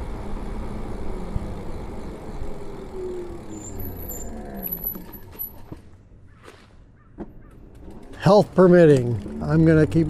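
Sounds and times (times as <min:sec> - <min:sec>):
motor drone falling in pitch: 0:00.0 - 0:05.4
road and wind rumble: 0:00.0 - 0:10.0.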